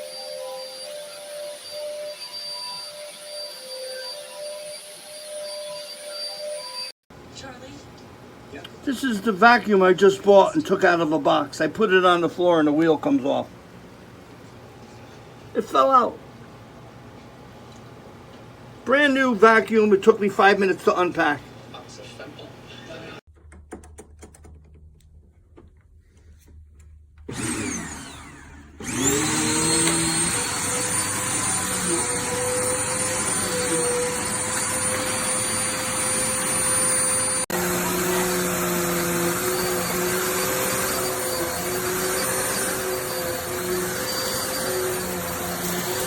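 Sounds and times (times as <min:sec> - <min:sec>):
vacuum cleaner motor running: 0:00.0 - 0:06.9, 0:27.3 - 0:46.0.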